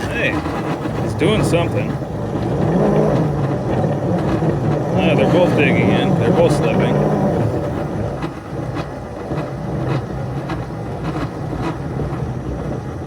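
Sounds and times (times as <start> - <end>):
locomotive drive hum: 0.0 - 13.0.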